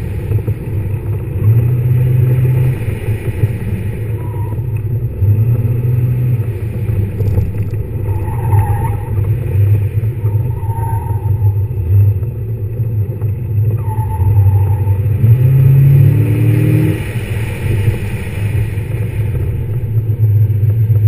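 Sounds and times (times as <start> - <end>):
car engine revving: 0.0 - 21.0
tyre squeals: 4.2 - 4.8, 8.0 - 9.4, 10.2 - 11.8, 13.7 - 15.3.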